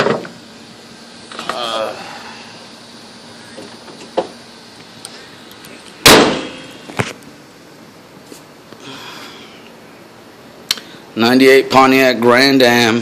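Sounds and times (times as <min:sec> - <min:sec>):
sharp ringing clang: 0:06.0 - 0:06.8.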